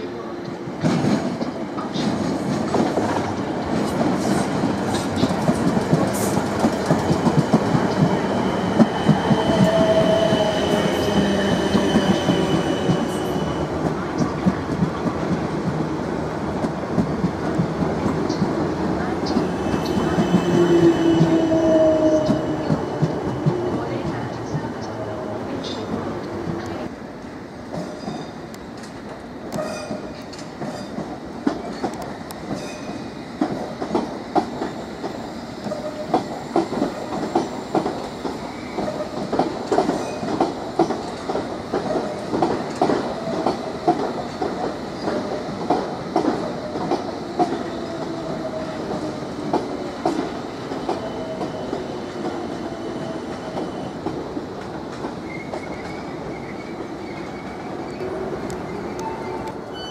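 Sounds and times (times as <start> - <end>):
train wheels clicking over rail joints: 27.7 - 52.6.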